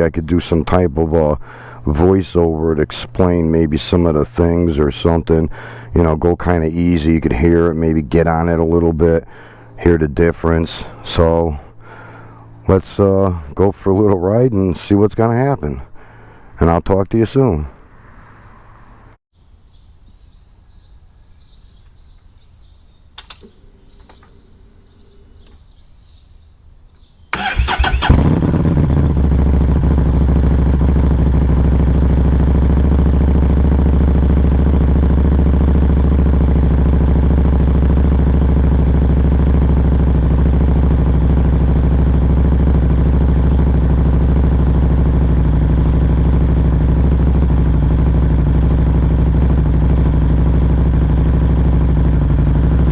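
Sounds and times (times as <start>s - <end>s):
motorcycle engine idling: 0.0s - 13.5s, 27.4s - 52.9s
motorcycle engine starting: 0.0s - 13.9s, 16.0s - 16.5s, 27.3s - 52.9s
faint chirping: 19.4s - 27.4s.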